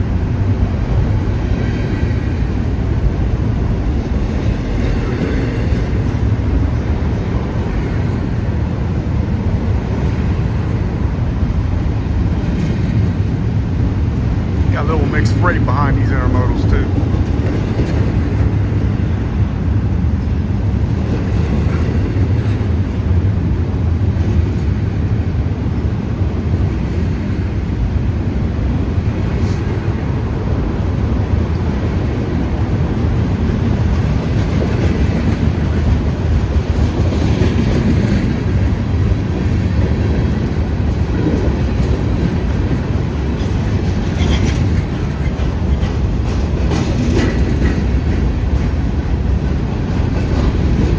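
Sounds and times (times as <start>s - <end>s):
freight train wheels rumbling: 0.0s - 50.9s.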